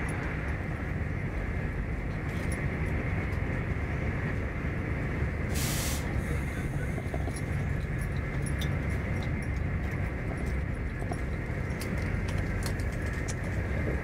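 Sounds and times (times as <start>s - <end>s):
train rumbling inside carriage: 0.0s - 14.0s
light clicks and ticks: 7.1s - 13.7s.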